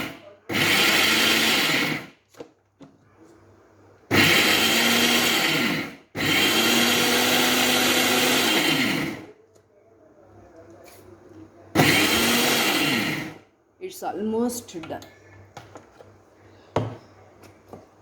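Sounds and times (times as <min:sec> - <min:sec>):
mixer grinder motor grinding: 0:00.0 - 0:02.1, 0:04.1 - 0:09.3, 0:11.8 - 0:13.4.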